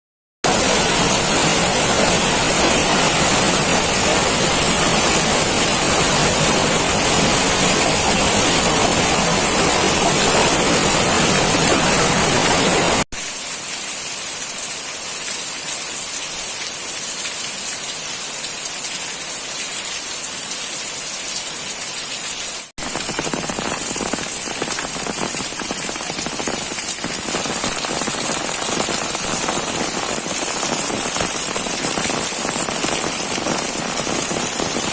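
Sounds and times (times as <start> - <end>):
heavy rain pouring: 0.4 - 14.0, 22.6 - 34.9.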